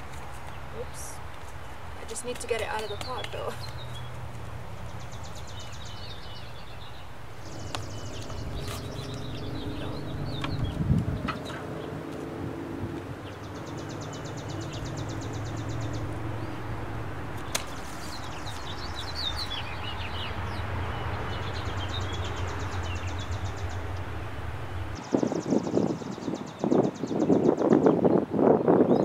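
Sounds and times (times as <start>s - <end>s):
low hum: 3.6s - 26.0s
gliding bird chirps: 4.9s - 27.6s
rustling: 17.3s - 19.6s.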